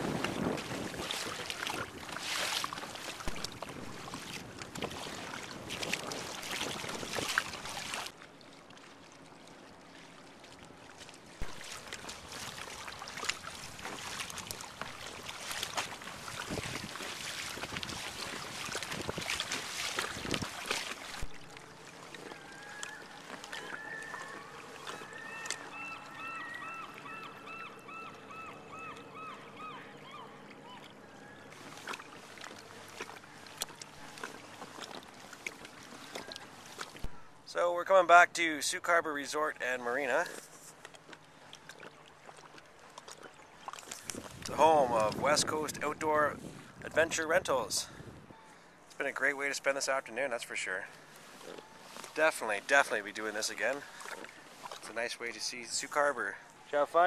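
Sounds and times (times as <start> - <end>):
wind on microphone: 0.0 - 2.1, 16.0 - 20.7, 44.0 - 48.4
water splashing around kayak: 0.0 - 57.0
birds calling: 21.9 - 34.6, 35.8 - 37.4.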